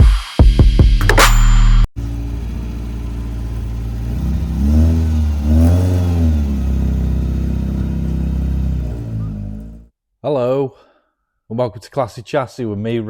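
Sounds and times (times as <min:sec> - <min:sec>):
car engine idling and revving: 0:02.0 - 0:09.9.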